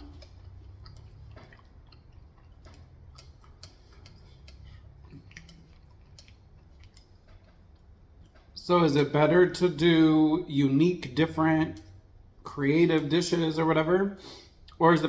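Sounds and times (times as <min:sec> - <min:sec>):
faint crunchy chewing: 0:00.0 - 0:08.6
low steady hum: 0:00.0 - 0:15.0.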